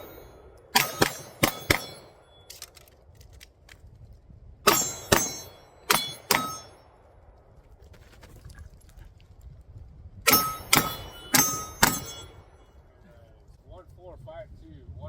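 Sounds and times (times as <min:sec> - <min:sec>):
pistol shots: 0:00.0 - 0:02.5, 0:04.7 - 0:07.0, 0:10.3 - 0:12.4
steel target ringing: 0:00.0 - 0:02.6, 0:04.7 - 0:07.0, 0:10.3 - 0:12.8.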